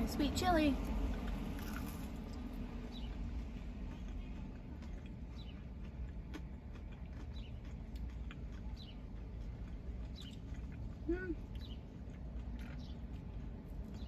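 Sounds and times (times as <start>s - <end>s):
steady low rumble: 0.0s - 14.0s
chewing crispy food: 0.8s - 14.0s.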